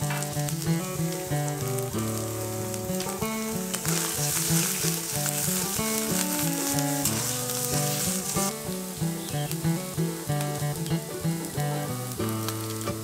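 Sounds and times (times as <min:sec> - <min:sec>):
music with plucked notes: 0:00.0 - 0:13.0
paste sizzling in a pan: 0:00.0 - 0:13.0
spatula stirring: 0:02.4 - 0:08.5.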